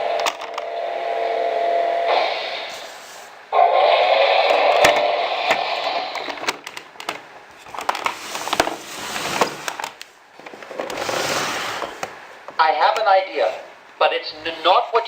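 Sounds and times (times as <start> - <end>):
electronic hissing rush: 0.9 - 6.2.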